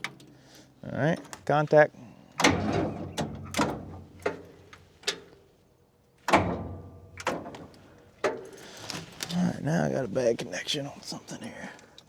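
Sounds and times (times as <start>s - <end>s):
starter motor clunking: 0.0s - 1.7s, 2.3s - 5.4s, 6.3s - 9.3s.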